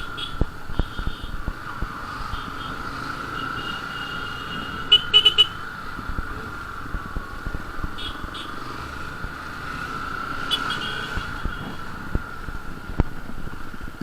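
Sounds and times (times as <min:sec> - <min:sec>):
vehicle horns tooting: 0:00.0 - 0:01.4, 0:02.2 - 0:05.7, 0:07.9 - 0:08.8, 0:10.4 - 0:11.9
motorcycle road noise: 0:00.0 - 0:14.0
wind thumps on microphone: 0:00.3 - 0:02.0, 0:11.2 - 0:14.0.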